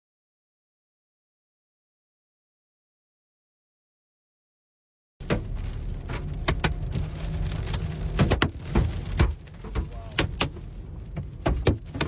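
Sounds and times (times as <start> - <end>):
hailstones banging on a car: 5.2 - 12.0
low rumble: 5.2 - 12.0.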